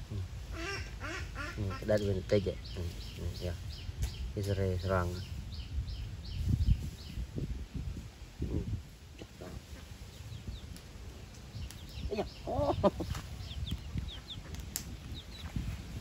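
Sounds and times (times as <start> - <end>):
birds calling: 0.0 - 7.2, 9.1 - 16.0.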